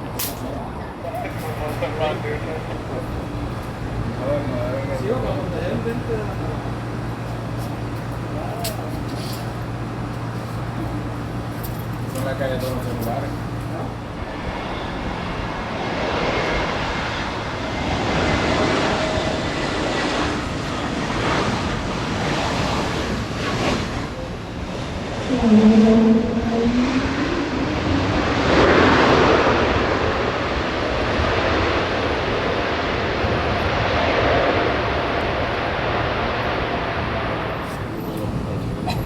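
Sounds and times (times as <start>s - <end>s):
jet engine rushing: 0.0s - 39.0s
short rising pitched sound: 25.2s - 29.9s.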